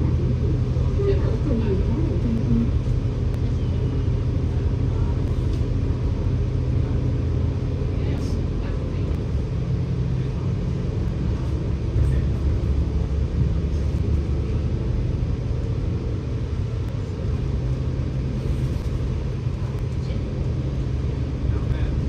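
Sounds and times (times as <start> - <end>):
bus engine drone: 0.0 - 22.0.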